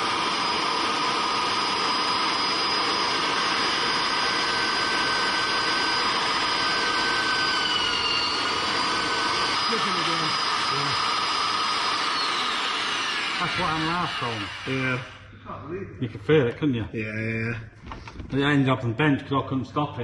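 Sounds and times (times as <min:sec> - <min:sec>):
electric drill boring into iron: 0:00.0 - 0:15.2.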